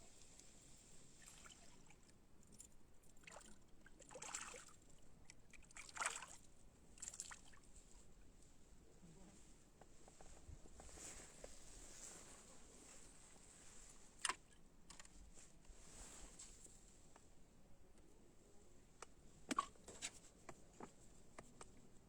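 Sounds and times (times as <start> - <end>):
soft water splashes: 0.1 - 8.0.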